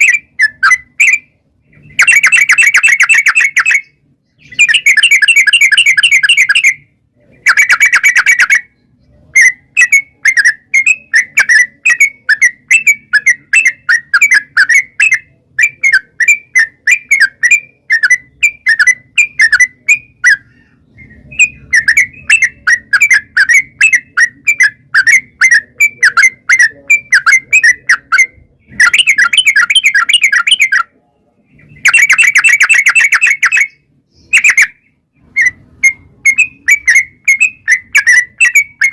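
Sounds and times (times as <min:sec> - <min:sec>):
rapid bird trills: 0:00.0 - 0:31.0, 0:31.6 - 0:38.9
bird chattering song: 0:00.0 - 0:38.9.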